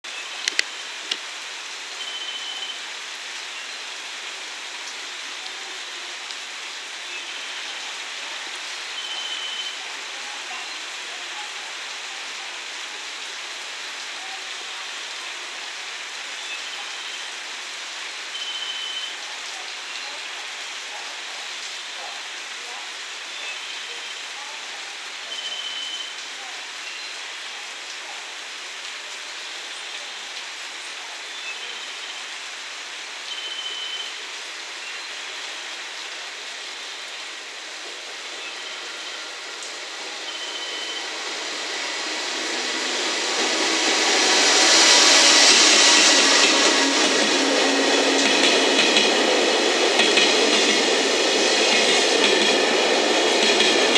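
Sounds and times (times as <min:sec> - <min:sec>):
rain hiss: 0:00.0 - 0:53.9
short high beep: 0:02.0 - 0:02.8, 0:40.3 - 0:41.2
freight train passing: 0:35.1 - 0:53.9.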